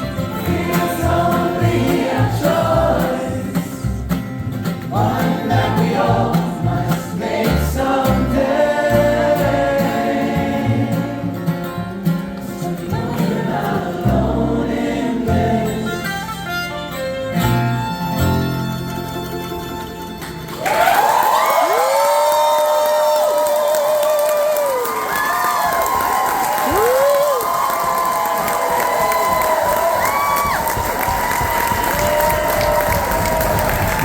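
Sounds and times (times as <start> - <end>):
voices singing in harmony: 0.0 - 16.3
guitar: 0.0 - 21.9.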